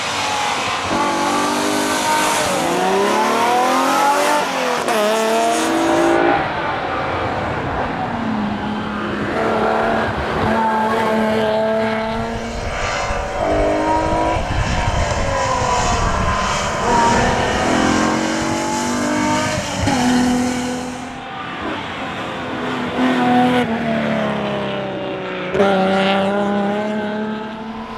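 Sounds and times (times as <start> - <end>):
car engine revving: 0.0 - 27.9.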